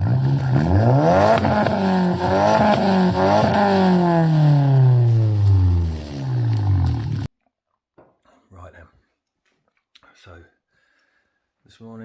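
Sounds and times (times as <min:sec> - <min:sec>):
car engine revving: 0:00.0 - 0:07.3.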